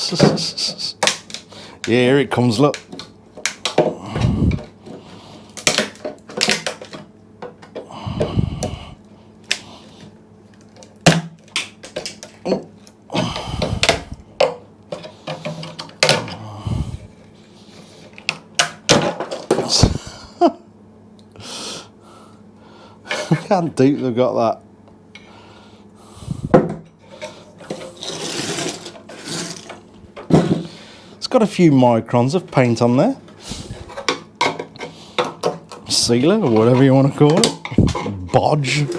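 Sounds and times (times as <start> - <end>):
scraper scraping metal: 27.8 - 29.7.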